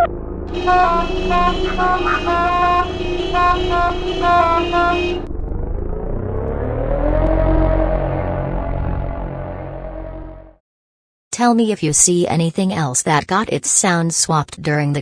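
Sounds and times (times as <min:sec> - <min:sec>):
cartoon taxi horns honking: 0:00.0 - 0:05.3
low rising sound: 0:00.0 - 0:10.6.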